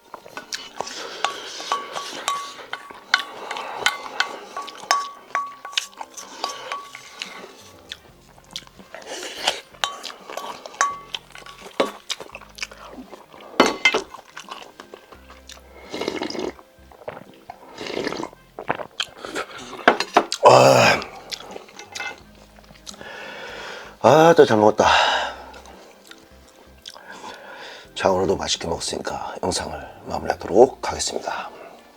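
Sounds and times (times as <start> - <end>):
chewing: 0.1 - 23.5, 25.5 - 27.4
spoon clicking against a bowl: 1.2 - 7.0.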